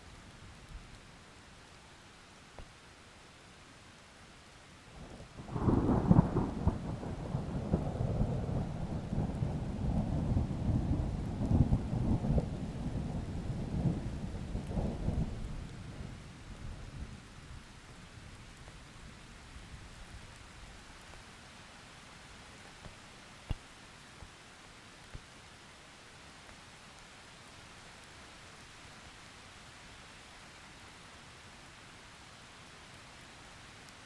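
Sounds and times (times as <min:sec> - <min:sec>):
steady rain: 0:00.0 - 0:34.0
thunder rolling: 0:05.5 - 0:15.4.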